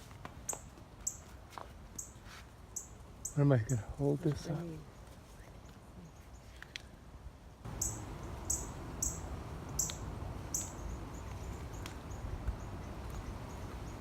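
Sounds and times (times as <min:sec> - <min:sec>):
small bird chirping: 0:07.7 - 0:14.0.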